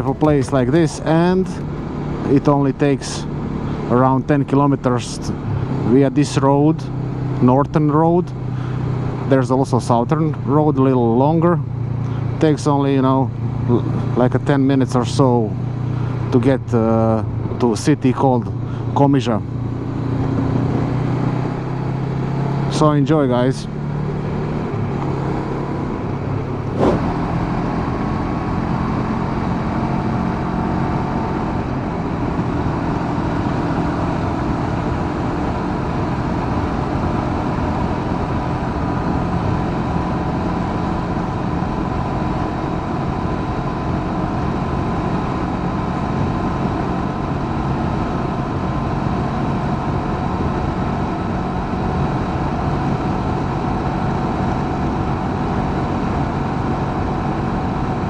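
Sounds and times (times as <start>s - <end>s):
motorcycle engine cruising: 23.8s - 27.7s
wind noise: 26.2s - 27.5s.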